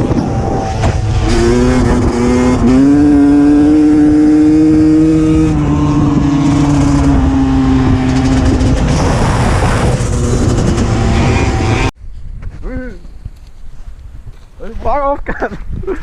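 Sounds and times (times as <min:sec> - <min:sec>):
dirt bike engine revving: 0:00.0 - 0:11.9
wind and riding noise: 0:00.0 - 0:16.0.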